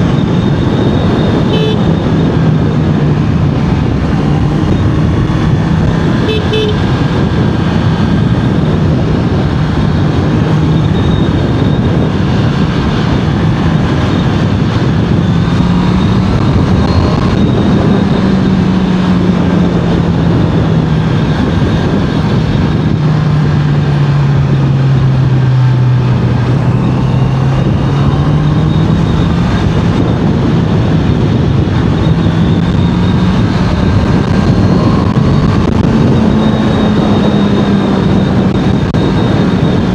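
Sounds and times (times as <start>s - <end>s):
motorcycle engine running: 0.0s - 39.9s
wind and road noise: 0.0s - 39.9s
short horn beep: 1.2s - 2.1s, 6.2s - 6.9s.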